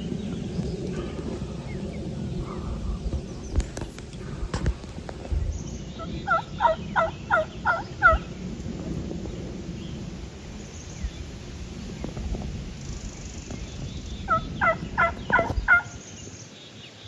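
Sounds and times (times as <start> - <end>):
turkey yelping: 6.2 - 8.3, 14.3 - 16.0.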